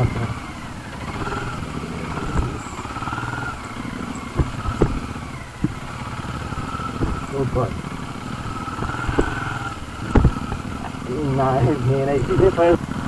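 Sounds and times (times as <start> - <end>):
motorcycle engine running: 0.0 - 13.0
sharp knocks: 1.0 - 11.0.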